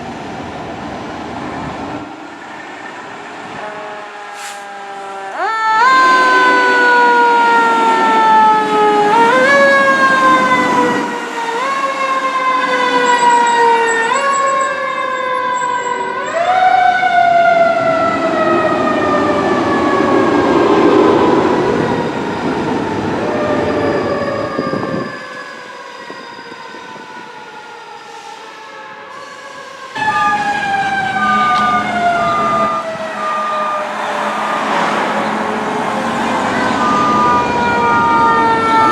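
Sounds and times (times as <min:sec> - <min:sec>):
fire truck siren: 0:01.6 - 0:38.9
truck rumble: 0:29.1 - 0:38.9.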